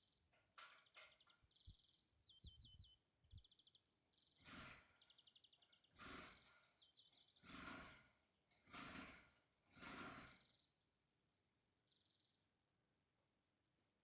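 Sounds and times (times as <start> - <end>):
small birds chirping: 0.0 - 11.0, 11.8 - 12.6.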